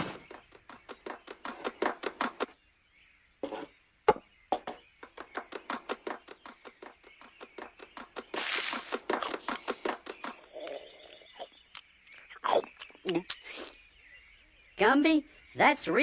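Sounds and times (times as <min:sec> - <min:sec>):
hiss: 0:08.4 - 0:09.0.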